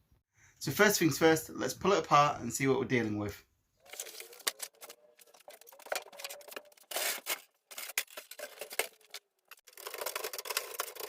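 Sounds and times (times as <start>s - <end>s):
saw parts clicking rattling and scraping: 3.8s - 11.0s.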